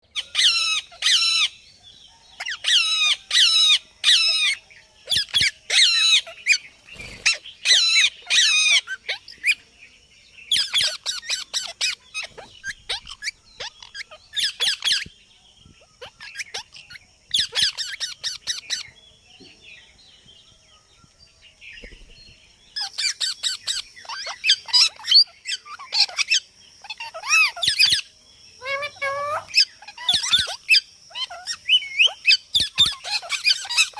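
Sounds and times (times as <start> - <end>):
parrot squawking: 0.2 - 1.5, 7.2 - 9.4, 10.5 - 15.0, 16.0 - 18.8, 22.8 - 33.9.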